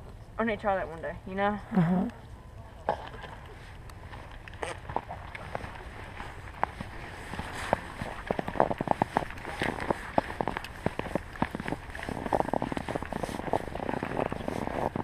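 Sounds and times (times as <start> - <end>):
footsteps crunching in snow: 4.0 - 15.0.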